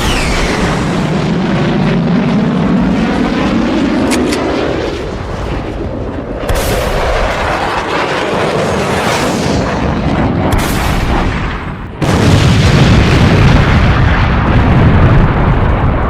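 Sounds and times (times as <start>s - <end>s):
fighter jet engine noise: 0.0s - 14.3s
gunfire or explosion blast: 6.4s - 16.0s
sharp shots: 8.5s - 12.2s.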